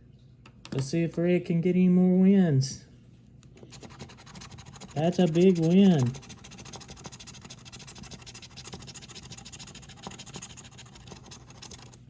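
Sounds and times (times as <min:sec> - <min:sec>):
lottery ticket being scratched: 0:03.6 - 0:12.0.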